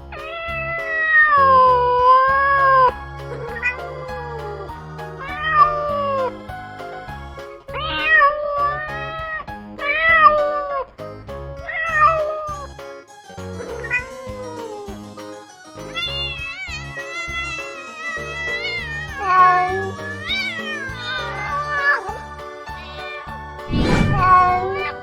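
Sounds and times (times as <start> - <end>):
background music: 0.0 - 25.0
cat meowing: 15.9 - 25.0.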